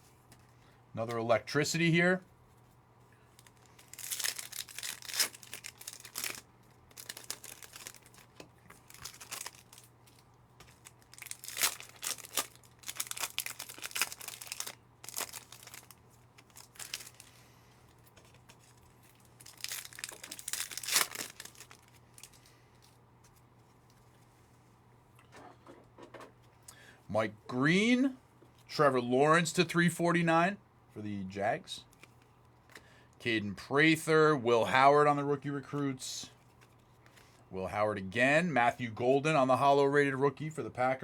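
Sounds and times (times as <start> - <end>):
wrappers tearing and crinkling: 3.3 - 23.0.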